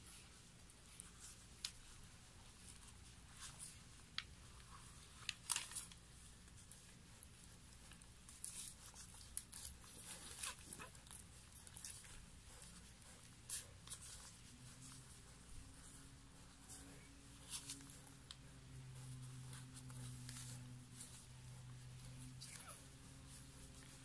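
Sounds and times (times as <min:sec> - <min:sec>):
newspaper rustling and crackling: 0:05.0 - 0:06.6.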